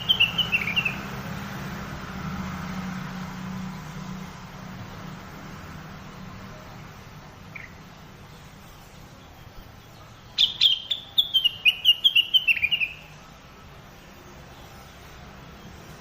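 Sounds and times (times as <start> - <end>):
sharp bird chirps: 0.0 - 1.1, 10.3 - 13.2.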